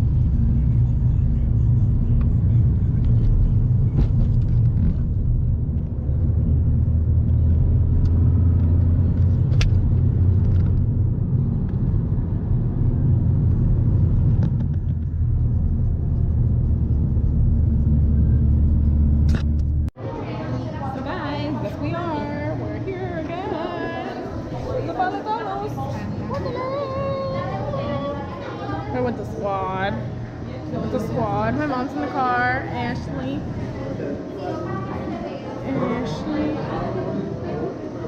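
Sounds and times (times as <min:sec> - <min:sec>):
car road rumble from inside: 0:00.0 - 0:20.0.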